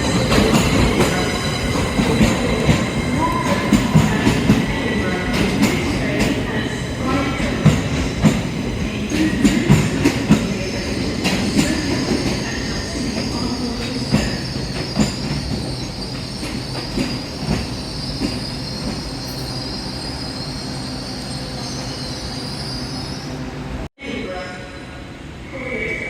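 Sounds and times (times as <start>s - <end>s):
train low rumble: 0.0s - 19.5s
train wheels squealing: 9.1s - 23.4s.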